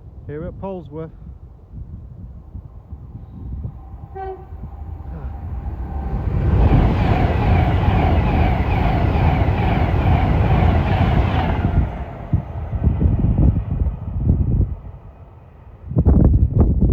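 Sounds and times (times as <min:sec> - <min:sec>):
express train passing: 0:02.1 - 0:16.3
train horn toot: 0:03.3 - 0:06.9.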